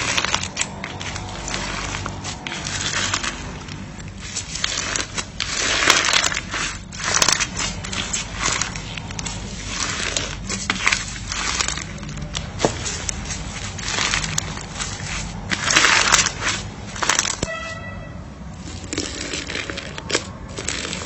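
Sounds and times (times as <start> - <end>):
crackles and sharp clicks: 0.0 - 17.7, 18.6 - 21.0.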